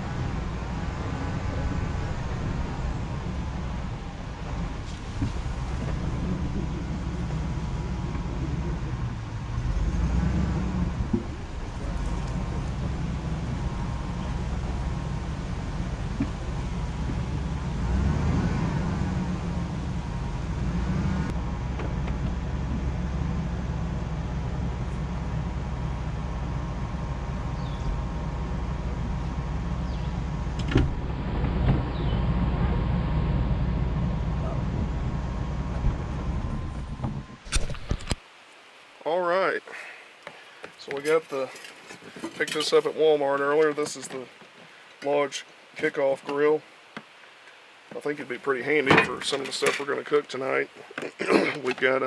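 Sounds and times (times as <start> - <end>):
rising and falling whine: 0.0 - 38.2
vehicle engine and road rumble: 0.0 - 52.0.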